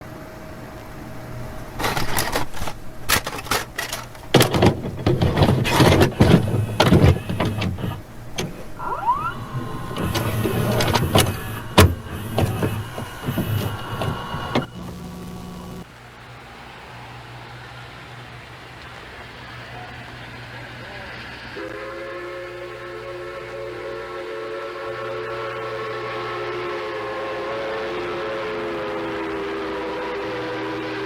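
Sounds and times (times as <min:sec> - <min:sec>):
metal clanks and knocks: 0:01.8 - 0:14.7
steam hissing: 0:03.7 - 0:17.9, 0:19.1 - 0:31.0
short rising squeal: 0:06.4 - 0:15.8.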